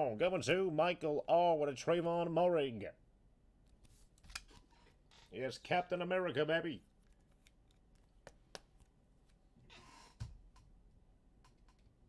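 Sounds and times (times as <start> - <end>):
faint clicks and taps: 6.9 - 9.4, 11.4 - 12.0.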